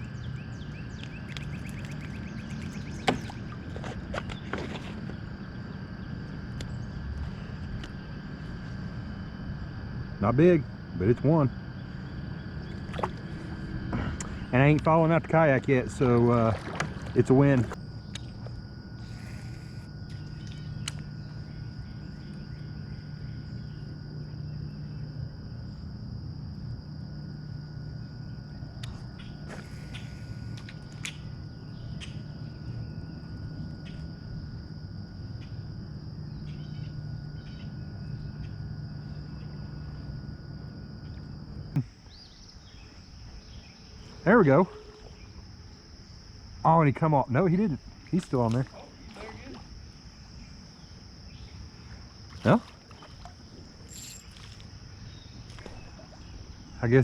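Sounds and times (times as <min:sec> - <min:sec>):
fish being handled in kayak: 0:00.0 - 0:09.8, 0:11.6 - 0:20.8, 0:47.8 - 0:56.8
insects droning: 0:00.0 - 0:57.0
low steady hum: 0:00.0 - 0:57.0
fishing gear clicking and knocking: 0:53.9 - 0:54.6.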